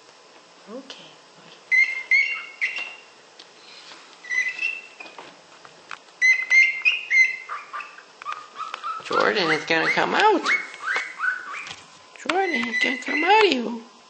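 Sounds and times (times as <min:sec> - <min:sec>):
cockatiel chirping: 0:01.7 - 0:03.0, 0:04.2 - 0:05.0, 0:06.2 - 0:11.8, 0:12.4 - 0:13.4.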